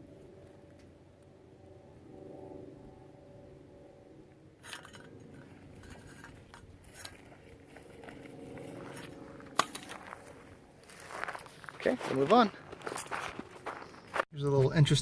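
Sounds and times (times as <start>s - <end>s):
crunching over rocky ground: 4.8s - 14.3s.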